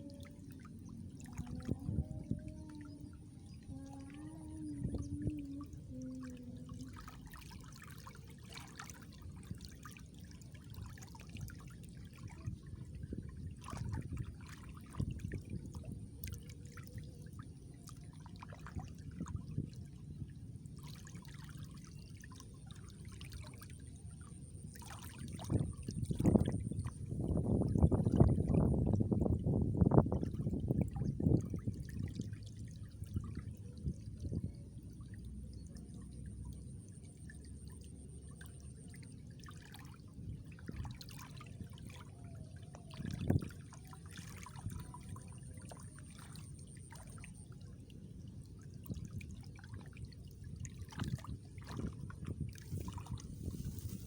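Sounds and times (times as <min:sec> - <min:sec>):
water splashing: 0:00.0 - 0:12.4, 0:50.8 - 0:54.0
water trickling: 0:00.0 - 0:42.1, 0:42.8 - 0:54.0.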